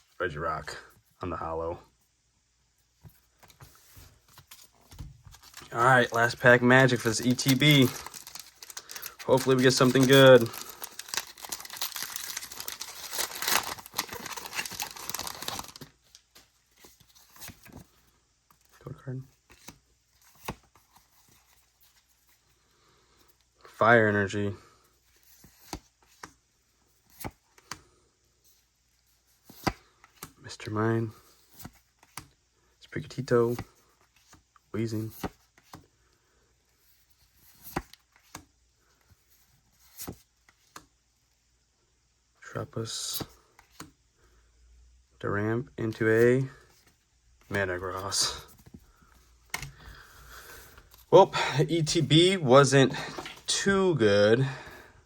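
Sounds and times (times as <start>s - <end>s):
foil wrapper crinkling and tearing: 5.4s - 16.0s.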